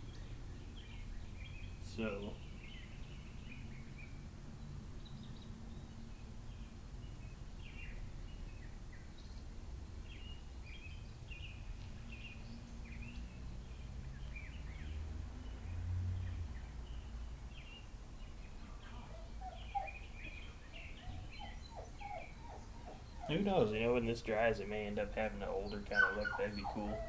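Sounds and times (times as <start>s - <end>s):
small birds chirping: 0.0s - 27.0s
lower falling bird calls: 17.6s - 27.0s.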